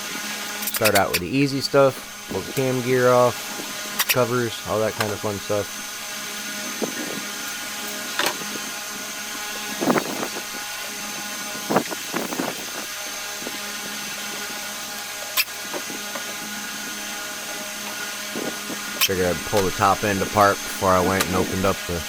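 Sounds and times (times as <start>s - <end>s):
steady background hum: 0.0s - 22.0s
metal tools clinking: 0.6s - 2.6s, 9.6s - 10.7s.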